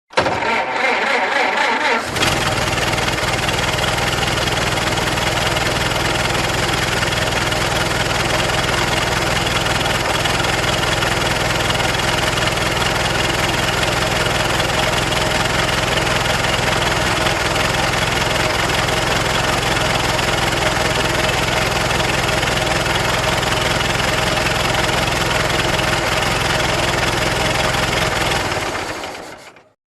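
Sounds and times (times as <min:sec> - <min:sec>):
car starter cranking: 0:00.1 - 0:03.9
car engine idling: 0:02.0 - 0:29.4.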